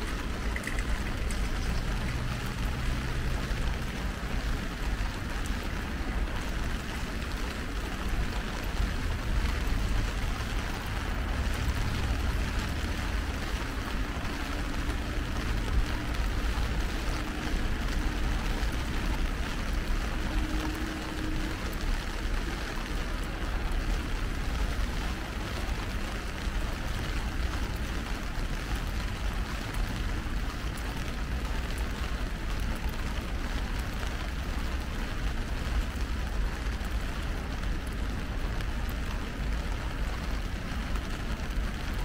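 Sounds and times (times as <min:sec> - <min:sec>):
heavy rain on an umbrella: 0:00.0 - 0:42.0.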